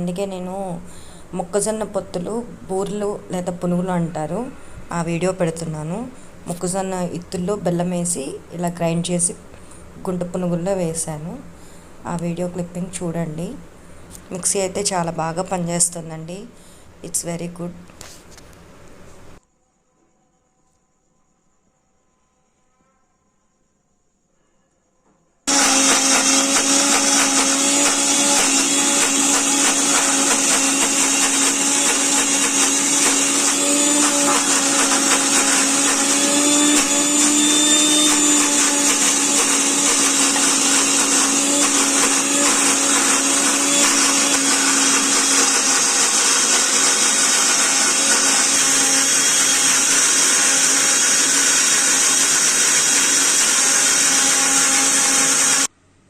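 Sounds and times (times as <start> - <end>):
mixer grinder motor whining: 25.5 - 55.7.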